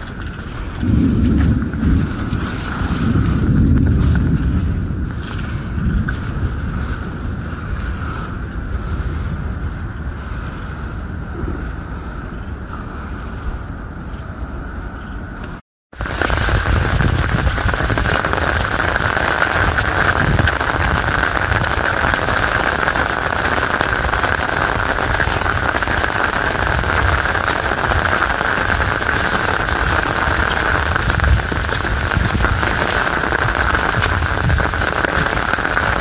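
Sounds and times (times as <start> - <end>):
heavy rain hissing: 0.0 - 13.5, 15.9 - 36.0
low rumble: 0.0 - 26.0.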